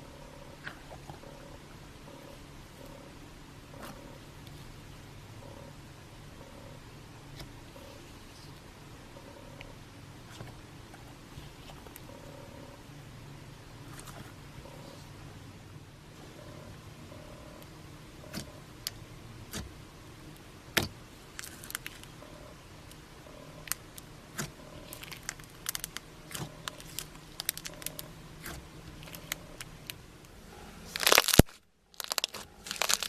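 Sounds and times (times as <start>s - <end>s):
slime popping and crackling: 24.9s - 30.0s, 30.9s - 33.0s
crinkly rush: 30.9s - 33.0s.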